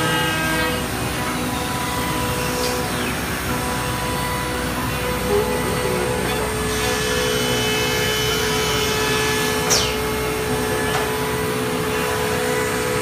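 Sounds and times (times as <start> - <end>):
router spindle whining: 0.0 - 13.0.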